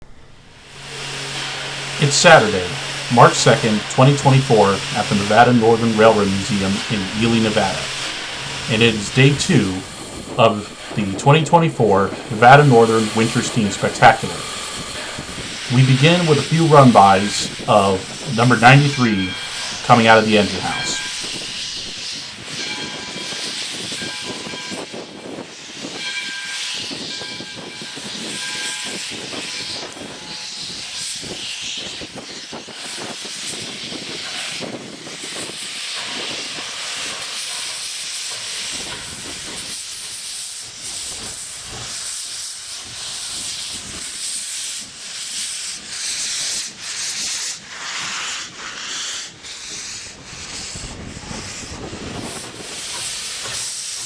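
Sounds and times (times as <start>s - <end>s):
multi-tone train whistle: 0.0s - 54.0s
steam locomotive hissing steam: 0.0s - 54.0s
wind buffeting microphone: 2.7s - 22.0s, 50.0s - 54.0s.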